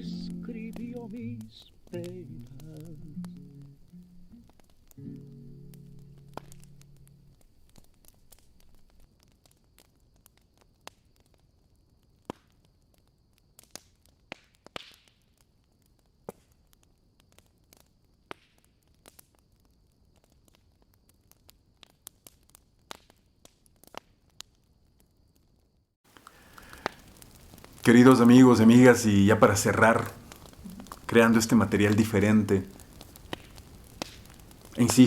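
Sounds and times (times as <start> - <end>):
faint steady high tone: 0.0 - 4.4
campfire crackling and popping: 0.0 - 35.0.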